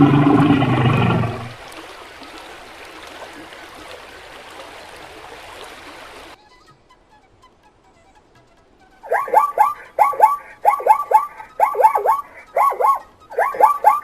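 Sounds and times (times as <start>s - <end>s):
animal call: 0.0s - 1.6s, 9.0s - 14.0s
flowing water rushing: 0.0s - 6.4s, 9.0s - 14.0s.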